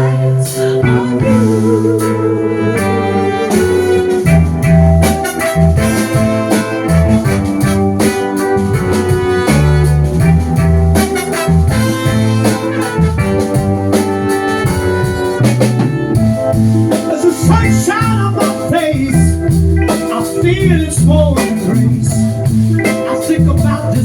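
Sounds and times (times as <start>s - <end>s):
bass line: 0.0s - 24.0s
live soul band playing: 0.0s - 24.0s.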